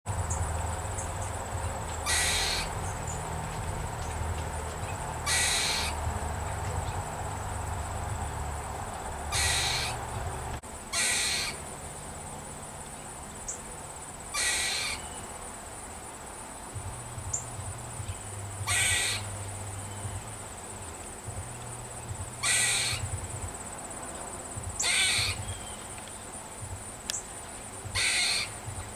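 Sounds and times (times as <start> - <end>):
squirrel barking alarm call: 0.2 - 11.7, 14.3 - 15.3, 17.2 - 20.4, 22.4 - 23.6, 24.6 - 26.3, 27.1 - 28.9.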